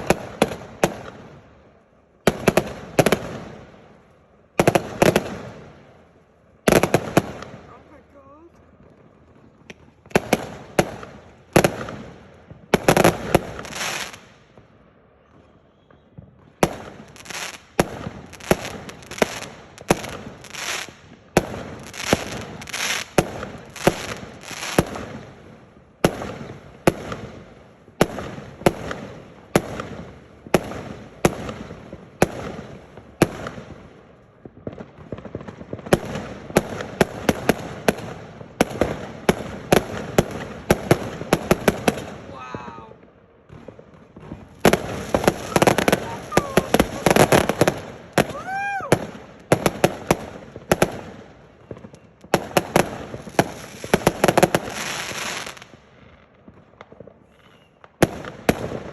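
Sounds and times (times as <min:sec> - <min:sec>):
fireworks banging: 0:00.0 - 0:58.9.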